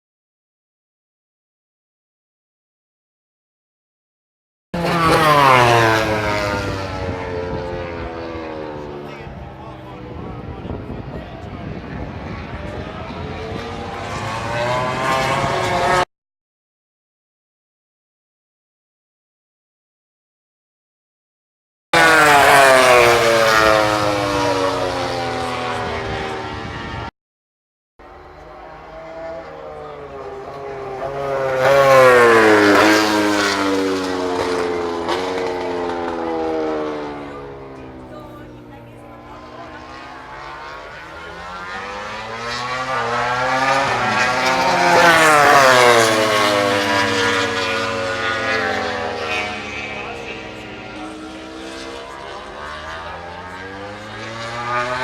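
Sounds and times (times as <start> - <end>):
racing motorcycle passing: 4.8 - 16.1, 22.0 - 27.1, 28.0 - 55.0.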